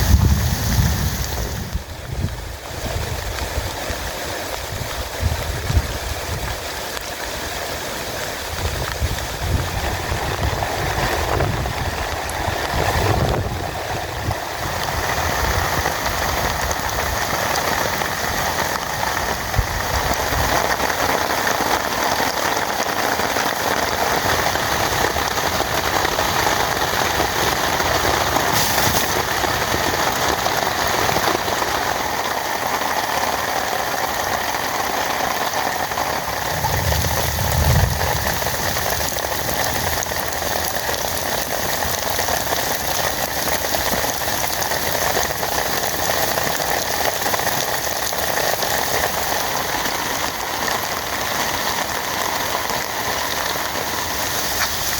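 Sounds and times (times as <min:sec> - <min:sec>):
heavy rain: 0:00.0 - 0:54.9
low uneven rumbling: 0:36.0 - 0:40.3.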